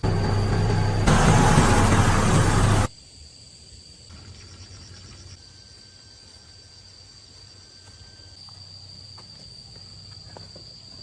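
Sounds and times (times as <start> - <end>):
high-pitched insect trill: 2.9 - 11.0.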